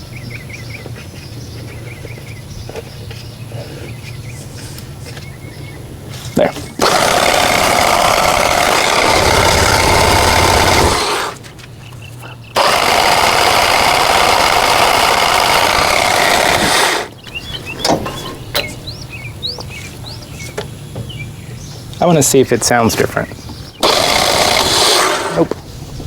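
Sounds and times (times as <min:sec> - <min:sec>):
generator engine cranking: 0:06.7 - 0:20.9, 0:23.6 - 0:25.6.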